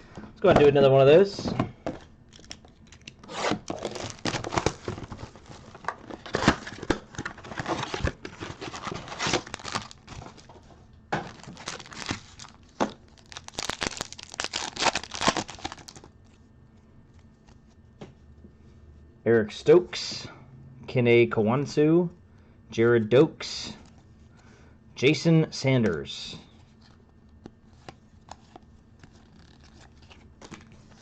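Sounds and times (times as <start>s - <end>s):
plastic wrapping tearing and crinkling: 2.3s - 10.5s, 11.2s - 16.1s, 29.0s - 31.0s.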